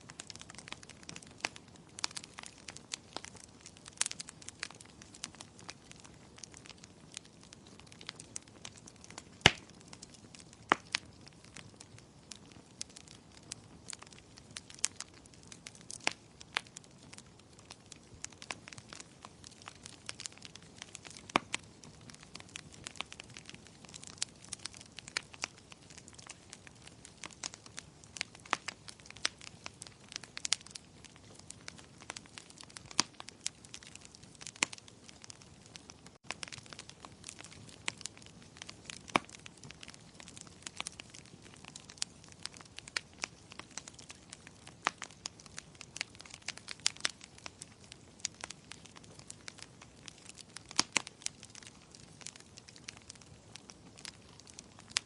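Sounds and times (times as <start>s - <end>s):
faint steady hiss: 0.0s - 2.8s
wood fire crackling: 0.0s - 55.0s.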